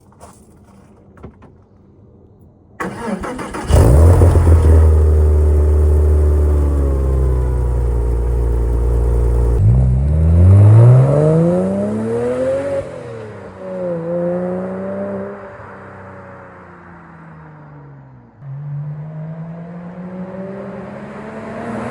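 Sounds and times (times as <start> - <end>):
starter motor cranking: 2.8 - 9.6
car engine idling and revving: 2.8 - 21.9.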